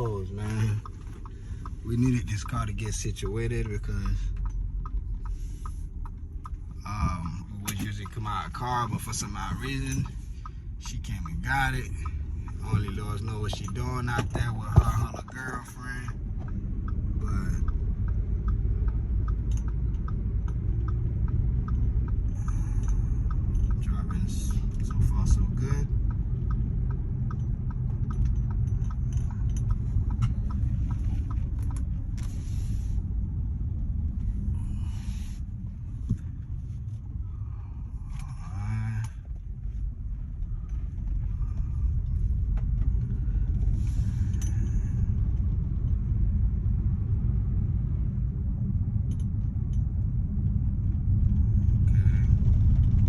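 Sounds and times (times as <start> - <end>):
road noise: 0.0 - 53.0
truck engine rumble: 0.0 - 53.0.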